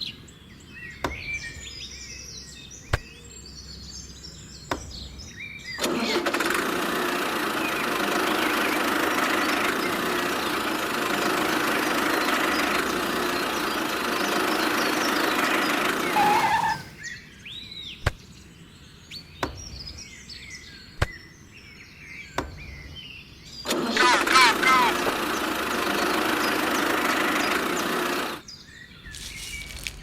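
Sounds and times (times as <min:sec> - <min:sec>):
birds chirping faintly: 0:16.0 - 0:17.0
small motor running: 0:16.1 - 0:17.0.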